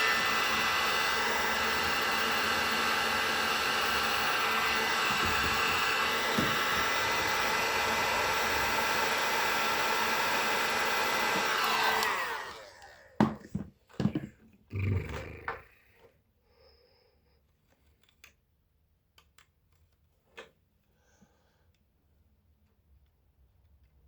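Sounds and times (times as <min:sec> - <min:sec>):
fan winding down: 0:00.0 - 0:13.2
heat gun blowing: 0:00.0 - 0:13.4.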